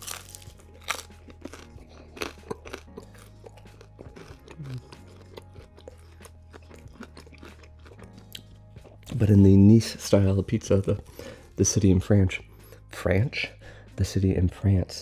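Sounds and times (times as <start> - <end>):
person chewing crunchy pizza: 0.0 - 9.2.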